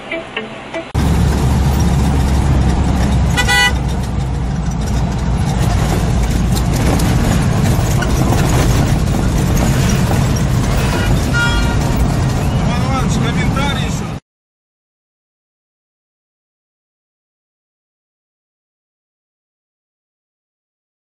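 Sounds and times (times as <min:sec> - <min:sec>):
engine and road rumble: 0:00.0 - 0:14.2
car horn honking: 0:03.2 - 0:04.0, 0:10.6 - 0:12.0.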